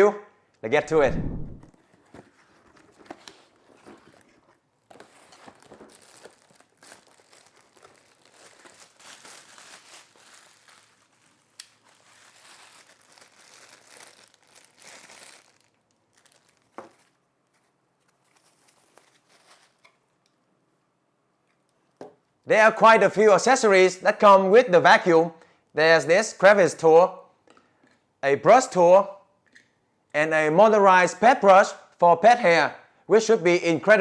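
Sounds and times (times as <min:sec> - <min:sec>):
packaging crinkling and rustling: 0:01.7 - 0:20.0.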